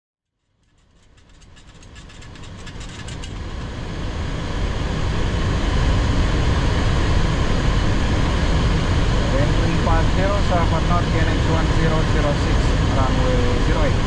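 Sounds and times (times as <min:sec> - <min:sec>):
airflow and engine rumble: 0:00.6 - 0:14.0.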